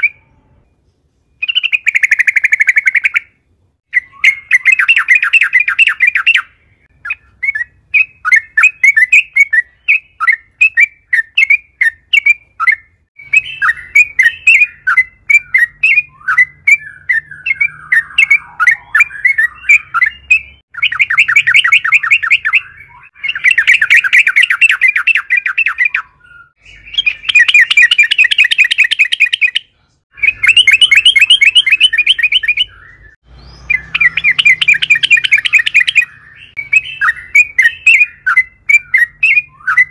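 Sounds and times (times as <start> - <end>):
bird fast rolling trills: 3.9 - 39.9.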